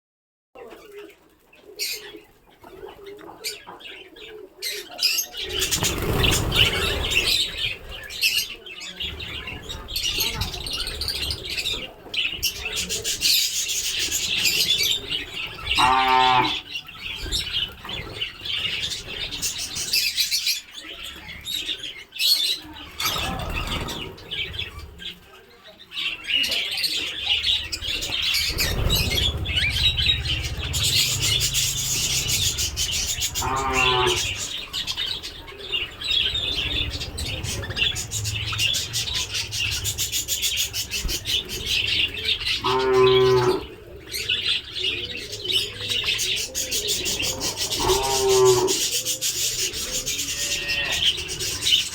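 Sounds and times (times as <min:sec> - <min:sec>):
budgerigars chattering and chirping: 0:01.8 - 0:51.9
wing flapping: 0:05.4 - 0:08.4, 0:27.6 - 0:42.5
loud pitched bird call: 0:15.6 - 0:16.7, 0:28.2 - 0:43.6
low rumbling: 0:27.4 - 0:45.2.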